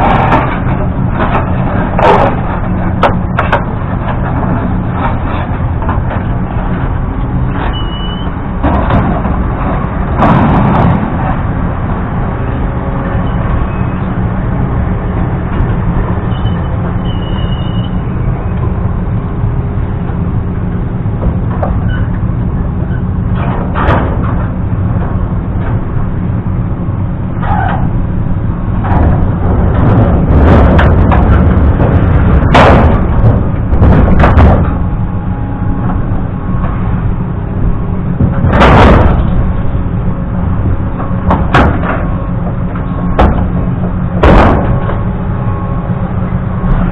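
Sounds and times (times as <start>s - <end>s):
loud bangs and knocks: 0.0s - 7.0s, 8.4s - 12.0s, 23.2s - 26.3s, 28.6s - 45.6s
engine running steadily: 0.0s - 46.9s.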